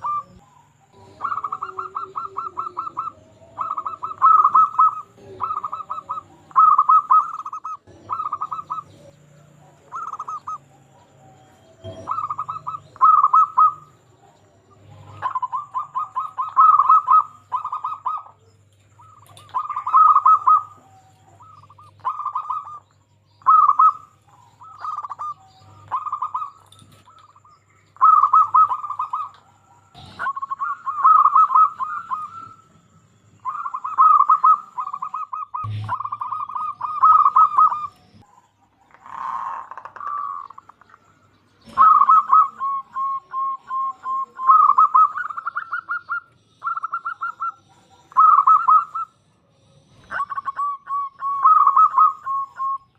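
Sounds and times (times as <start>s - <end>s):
doves cooing: 0.0s - 52.9s.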